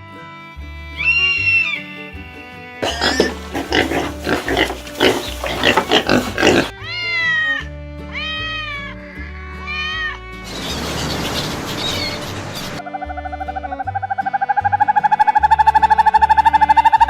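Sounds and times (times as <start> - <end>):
background music: 0.0 - 11.2, 12.8 - 17.0
animal grunting calls: 2.8 - 6.8
drawn-out animal calls: 2.8 - 7.5, 10.4 - 12.8.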